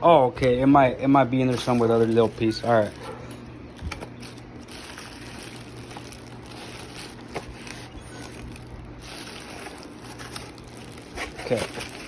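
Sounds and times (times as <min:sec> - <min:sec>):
handling tool parts: 0:01.4 - 0:12.0.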